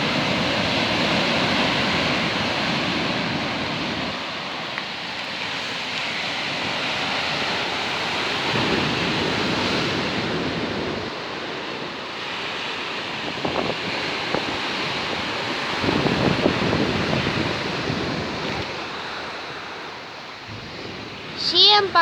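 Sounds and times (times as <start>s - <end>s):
sea surf crashing: 0.0s - 22.0s
wind buffeting microphone: 0.0s - 22.0s.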